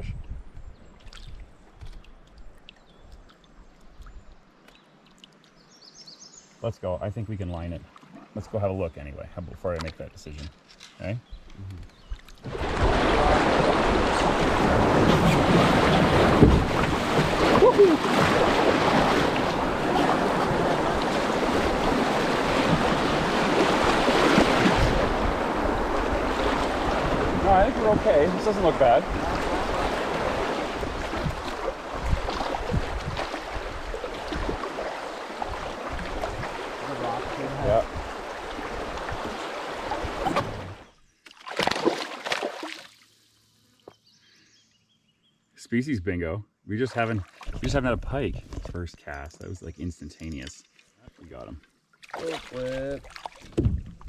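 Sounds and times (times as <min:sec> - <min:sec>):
water splashing and sloshing: 0:00.5 - 0:05.8, 0:07.7 - 0:08.8, 0:09.6 - 0:43.3, 0:46.8 - 0:49.5, 0:50.2 - 0:54.0
river rapids rushing: 0:12.9 - 0:31.0.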